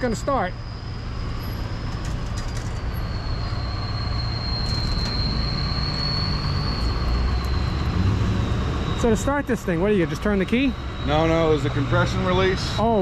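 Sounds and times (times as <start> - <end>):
high whine: 0.0 - 13.0.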